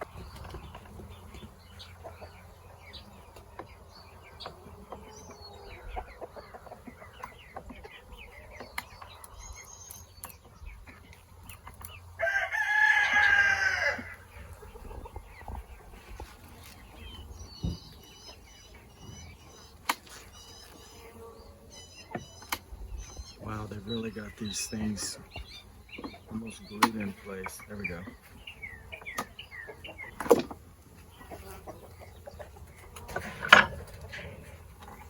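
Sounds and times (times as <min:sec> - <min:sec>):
chickens clucking: 0:00.0 - 0:35.0
small birds chirping: 0:00.0 - 0:35.0
rooster crowing: 0:12.2 - 0:14.2.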